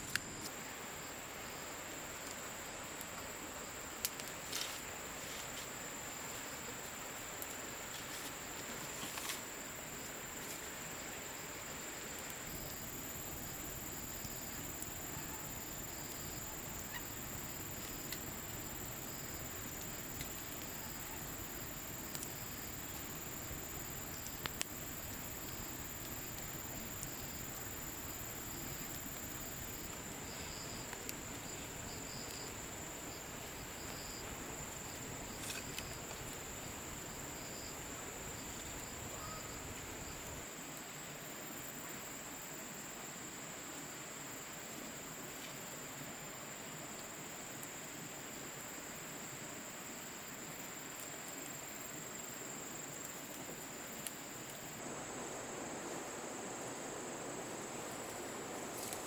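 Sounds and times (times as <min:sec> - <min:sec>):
forest background hiss: 0:00.0 - 0:59.0
insect chirps: 0:00.0 - 0:59.0
insects trilling: 0:00.0 - 0:59.0
faint clicks: 0:24.2 - 0:25.0.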